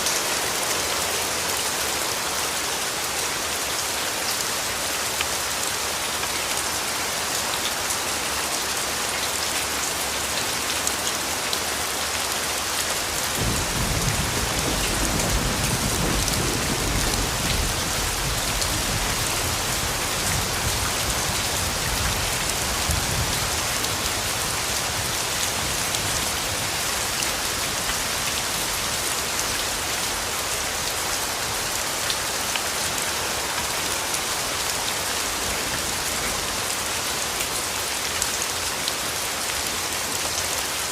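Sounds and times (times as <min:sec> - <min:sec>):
rain falling: 0:00.0 - 0:40.9
distant thunder rumble: 0:13.4 - 0:19.7.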